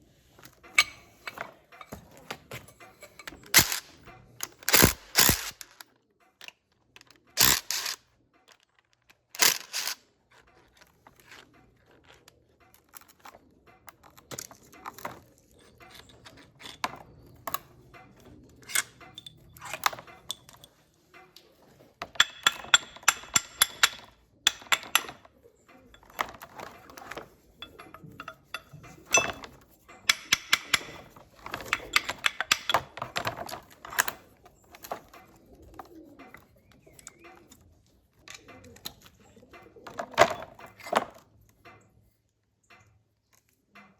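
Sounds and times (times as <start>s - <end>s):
metal tools clinking on workbench: 0.4s - 5.8s, 7.4s - 8.0s, 9.4s - 10.0s, 12.8s - 20.8s, 22.0s - 35.4s, 39.8s - 41.2s.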